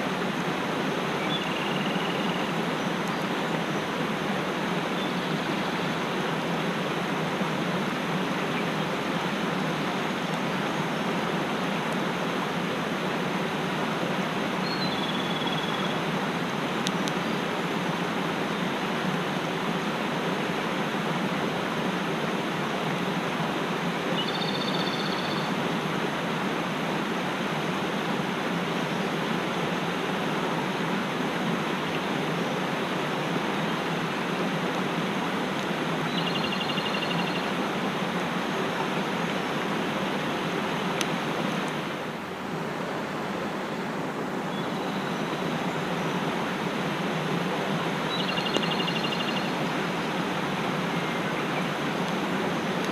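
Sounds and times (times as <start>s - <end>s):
stream rushing: 0.0s - 52.9s
faint high bird calls: 1.2s - 3.3s, 14.6s - 16.0s, 24.2s - 25.6s, 36.1s - 37.6s, 48.1s - 49.6s.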